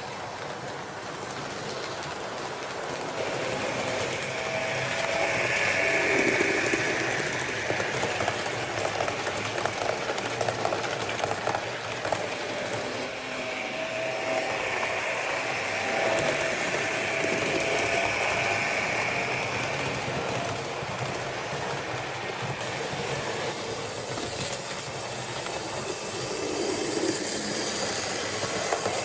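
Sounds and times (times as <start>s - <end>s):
wheels clicking over rails: 0.0s - 29.0s
small electric motor whine: 3.2s - 8.8s, 12.4s - 21.2s.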